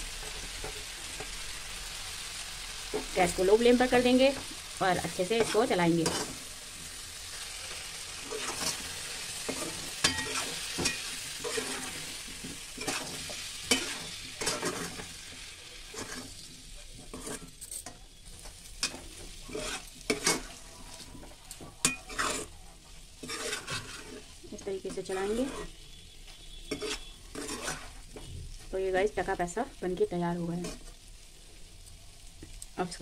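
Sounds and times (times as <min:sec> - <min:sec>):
gravy sizzling: 0:00.0 - 0:33.0
spatula scraping and knocking pan: 0:05.2 - 0:06.4, 0:08.2 - 0:15.2, 0:15.9 - 0:22.6, 0:23.2 - 0:25.7, 0:26.6 - 0:28.3.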